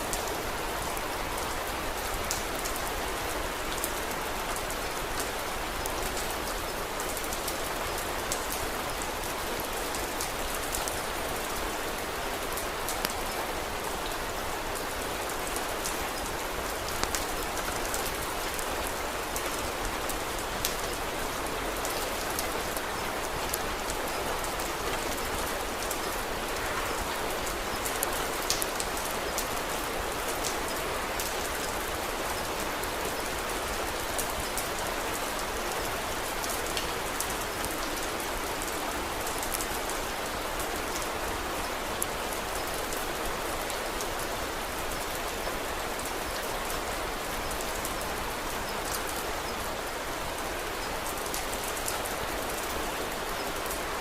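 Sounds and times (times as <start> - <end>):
steady rain: 0.0 - 54.0
wood fire crackles: 16.8 - 17.8, 27.8 - 29.5.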